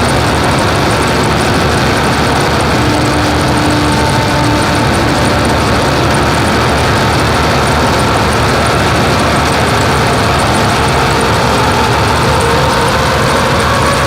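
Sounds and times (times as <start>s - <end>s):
harsh noise music: 0.0s - 14.0s.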